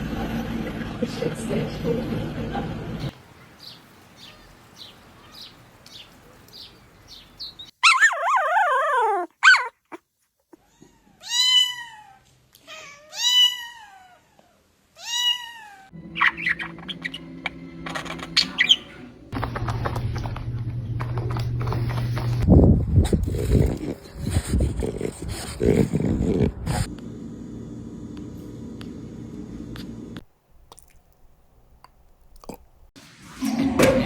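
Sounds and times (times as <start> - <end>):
cat meowing: 10.6 - 15.9.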